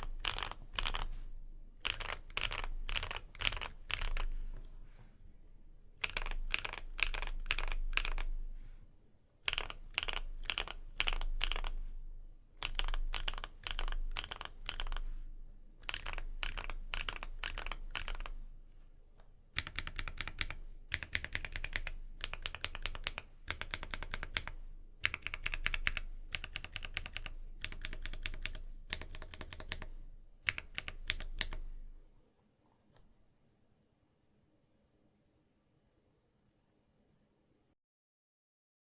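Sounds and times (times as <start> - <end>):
typing on mechanical keyboard: 0.0 - 1.1, 1.8 - 4.3, 6.0 - 8.3, 9.4 - 11.8, 12.6 - 15.0, 15.8 - 18.4, 19.6 - 29.9, 30.5 - 31.7.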